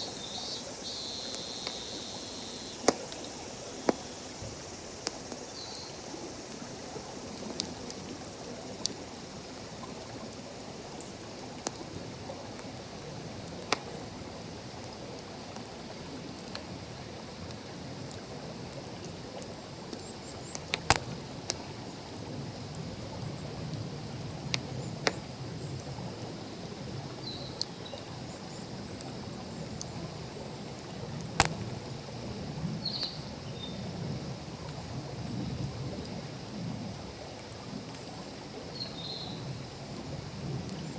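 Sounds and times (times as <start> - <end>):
campfire crackling and popping: 0.1 - 8.2, 13.4 - 14.0, 19.4 - 21.8, 31.1 - 32.3
stream rushing: 28.1 - 35.2.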